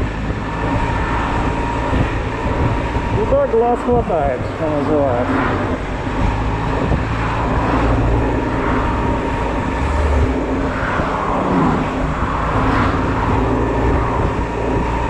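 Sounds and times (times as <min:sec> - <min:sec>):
scooter engine running: 0:00.0 - 0:15.0
traffic rumble: 0:00.0 - 0:15.0.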